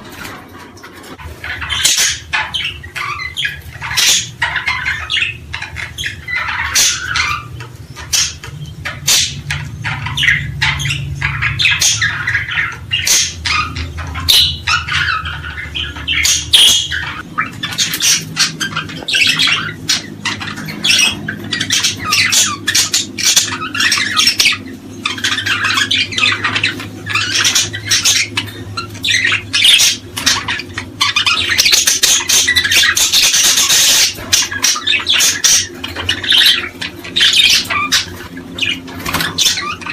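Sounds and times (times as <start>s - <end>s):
low steady hum: 0.0s - 39.9s
small birds chirping: 0.0s - 39.9s.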